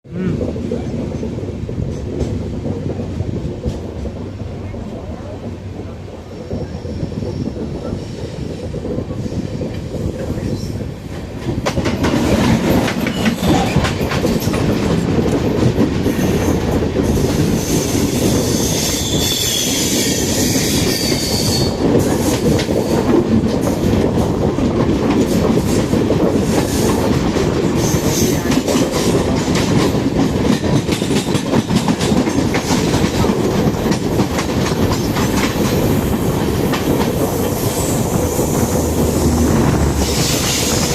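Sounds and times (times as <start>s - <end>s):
train wheels clattering on rails: 0.4s - 40.9s
high wheel squeal: 17.5s - 21.8s.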